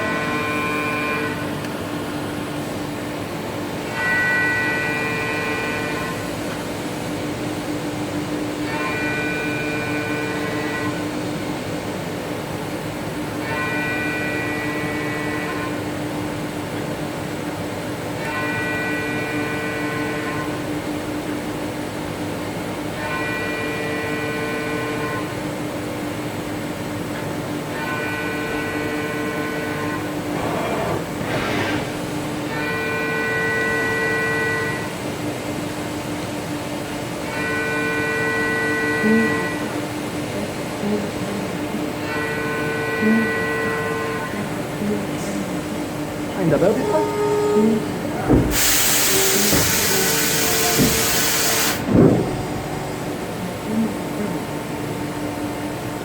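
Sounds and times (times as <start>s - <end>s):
machine steady hum: 0.0s - 56.0s
pitched machine whine: 45.6s - 56.0s.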